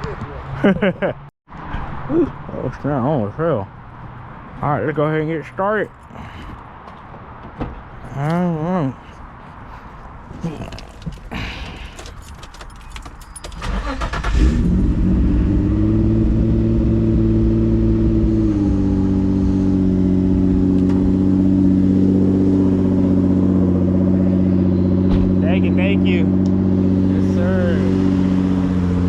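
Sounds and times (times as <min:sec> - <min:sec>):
engine starter cranking: 0:11.2 - 0:14.8.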